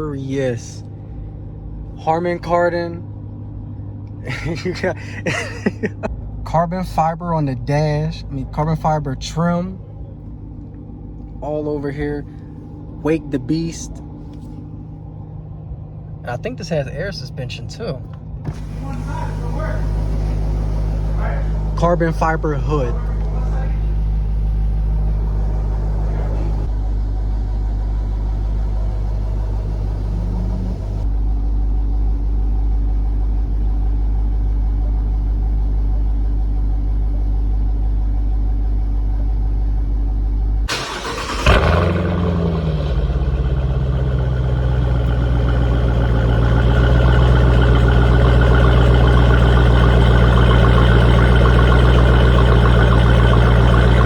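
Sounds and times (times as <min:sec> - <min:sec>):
car engine idling: 0:00.0 - 0:54.0
engine starting with sharp flare: 0:40.7 - 0:54.0.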